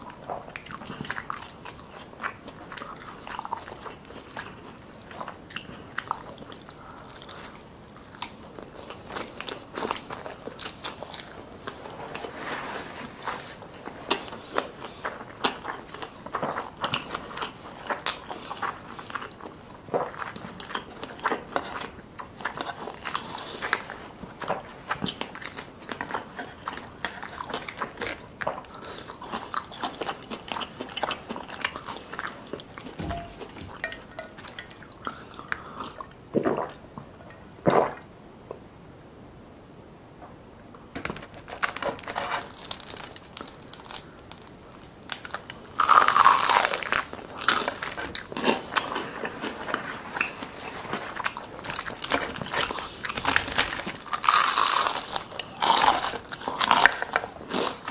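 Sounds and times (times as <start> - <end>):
person chewing and crunching food: 0.0 - 37.1, 41.3 - 57.9.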